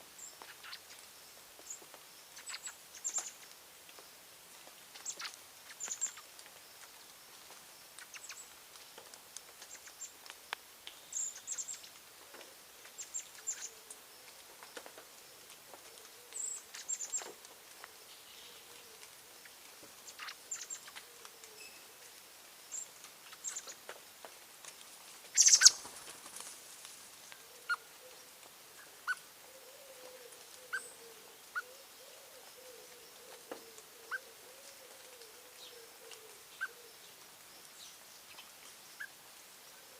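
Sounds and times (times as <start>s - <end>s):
loud rustle: 24.3s - 27.4s
birds chirping: 25.3s - 26.0s
low wavering cooing: 29.4s - 37.1s.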